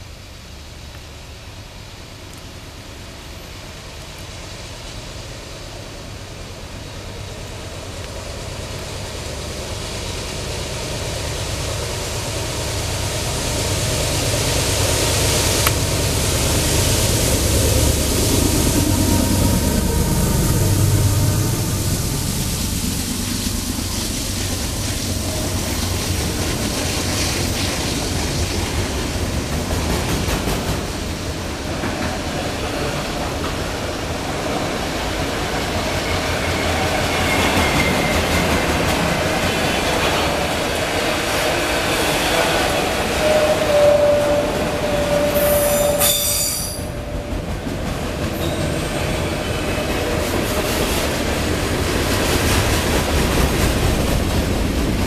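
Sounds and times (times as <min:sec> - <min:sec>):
train wheels rumbling on rails: 0:00.0 - 0:55.0
wheel squeal: 0:43.1 - 0:47.0.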